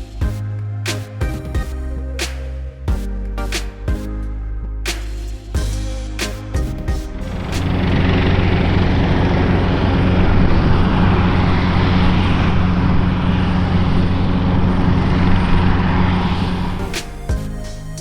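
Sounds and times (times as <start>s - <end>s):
aircraft engine drone: 7.1s - 17.0s.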